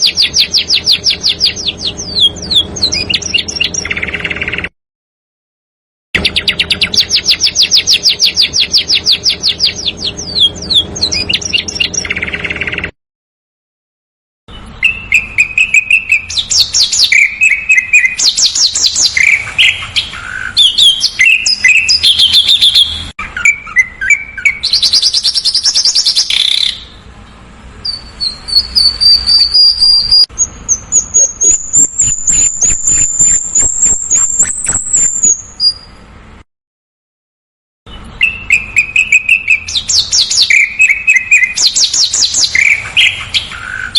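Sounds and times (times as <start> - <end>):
fast ticking bird notes: 0.0 - 4.7, 6.2 - 12.9, 14.6 - 26.9, 37.9 - 43.9
songbird chirps and trills: 0.0 - 4.7, 6.2 - 12.9, 14.5 - 36.1, 37.9 - 43.9.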